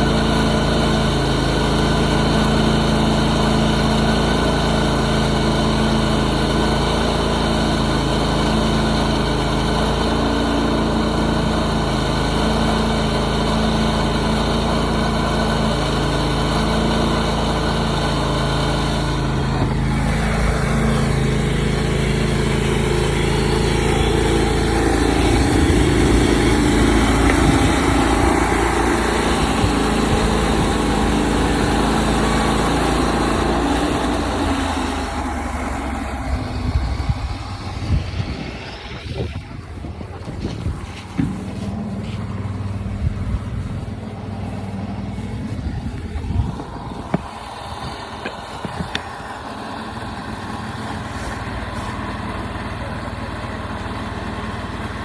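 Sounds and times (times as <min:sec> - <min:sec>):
gasoline engine running: 0:00.0 - 0:55.0.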